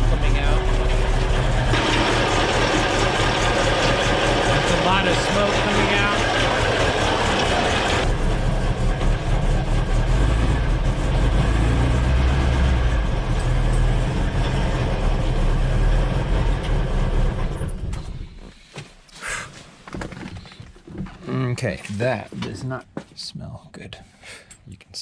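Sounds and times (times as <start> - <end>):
car engine running: 0.0 - 18.5.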